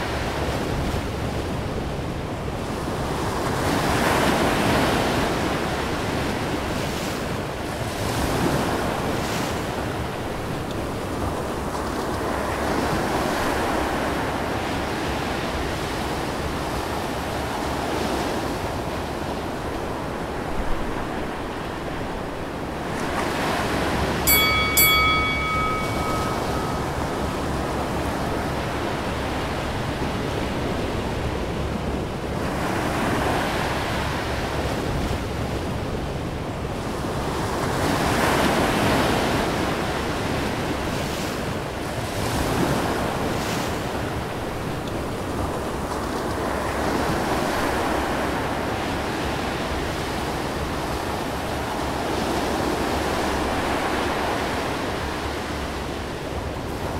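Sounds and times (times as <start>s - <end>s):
short ringing tone: 24.3s - 29.1s.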